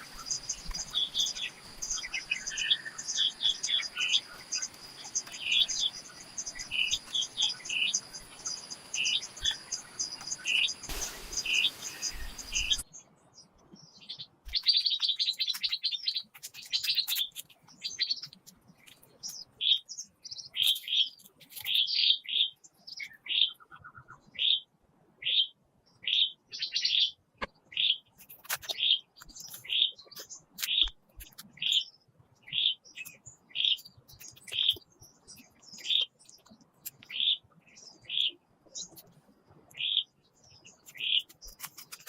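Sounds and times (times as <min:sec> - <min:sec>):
background hiss: 0:00.0 - 0:12.8
songbirds chirping: 0:00.0 - 0:42.0
brief rush of noise: 0:10.9 - 0:12.8.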